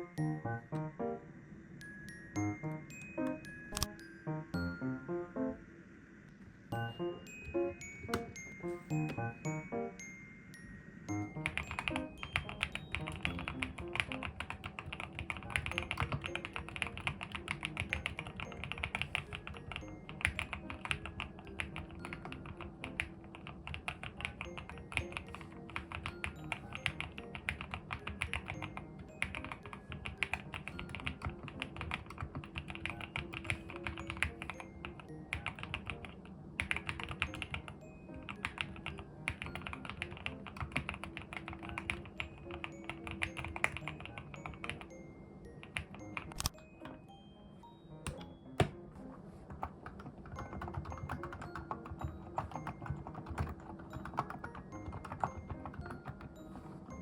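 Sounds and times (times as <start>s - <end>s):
background music: 0.0s - 57.0s
mechanical keyboard typing: 11.3s - 44.9s, 45.6s - 46.6s, 49.5s - 56.6s.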